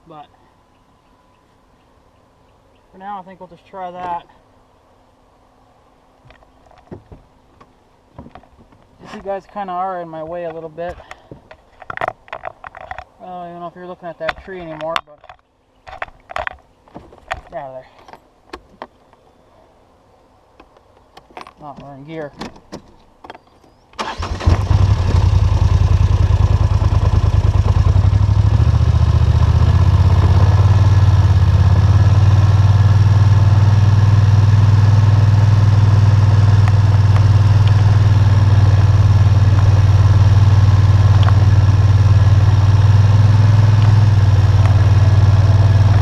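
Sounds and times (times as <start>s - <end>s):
quad bike engine running: 24.4s - 46.0s.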